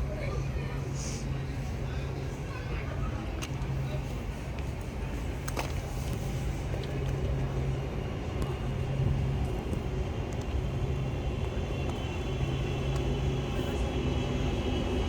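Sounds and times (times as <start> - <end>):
electric train humming: 6.4 - 15.0.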